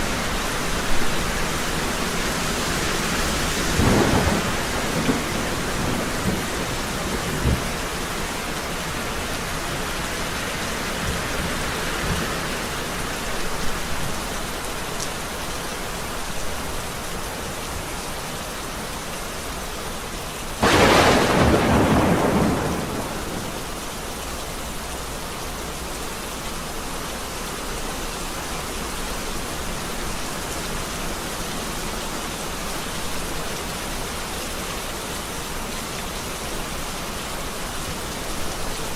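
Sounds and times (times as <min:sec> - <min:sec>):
steady rain: 0:00.0 - 0:38.9
low thunder rumbles: 0:03.4 - 0:08.0, 0:20.6 - 0:23.9
loud thunderclap: 0:03.7 - 0:07.8, 0:20.6 - 0:23.7.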